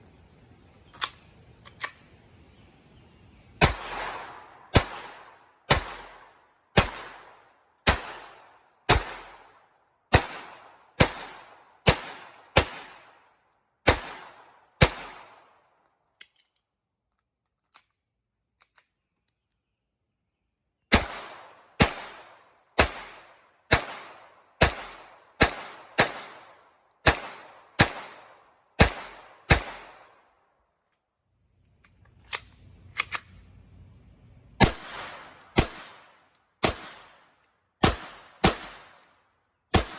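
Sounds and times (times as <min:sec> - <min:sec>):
pistol shots: 0:03.6 - 0:13.2, 0:13.8 - 0:15.5, 0:20.9 - 0:30.2, 0:34.6 - 0:39.1.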